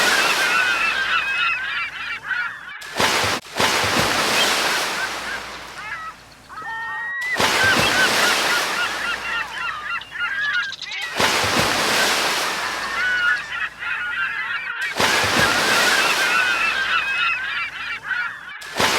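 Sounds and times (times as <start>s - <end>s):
gulls calling: 0.0s - 18.9s
waves breaking: 0.0s - 18.9s.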